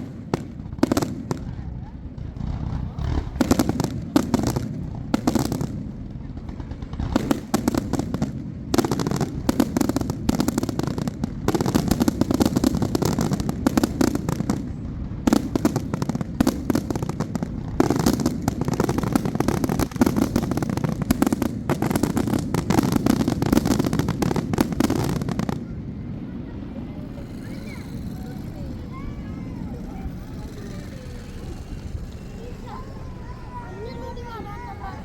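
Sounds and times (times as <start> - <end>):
fireworks crackling and popping: 0.0 - 35.0.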